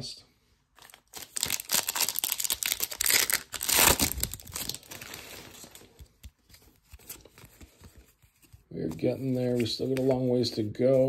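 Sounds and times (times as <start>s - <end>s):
plastic wrapper tearing and crinkling: 0.8s - 7.6s.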